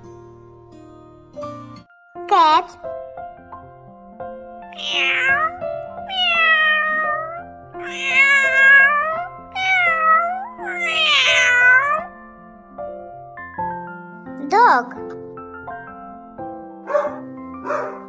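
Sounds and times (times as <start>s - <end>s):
light children's music: 0.0s - 18.0s
cat meowing: 4.6s - 12.2s.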